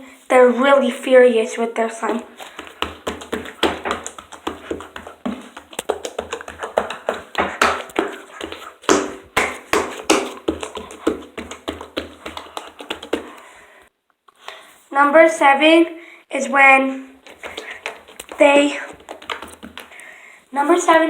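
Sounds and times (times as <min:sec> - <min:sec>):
hand slapping slime: 0:05.4 - 0:13.4.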